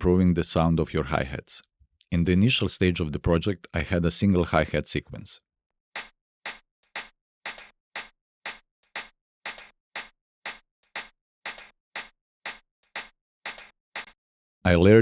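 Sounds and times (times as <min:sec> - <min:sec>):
programmed hi-hat hits: 0:06.0 - 0:14.2.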